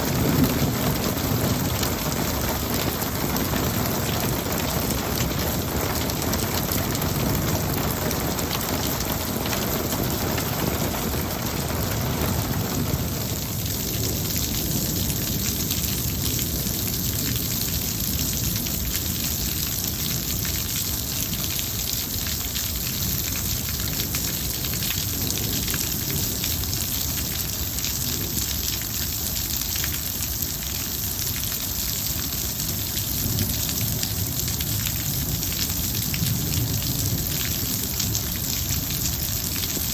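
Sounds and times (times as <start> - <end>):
low rumble of thunder: 0.0 - 20.4, 33.2 - 39.9
steady rain falling: 0.0 - 39.9.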